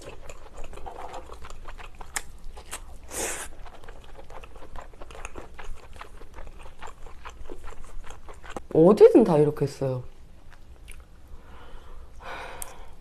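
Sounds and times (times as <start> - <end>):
wet chewing clicks and smacks: 0.0 - 8.7, 10.4 - 11.1.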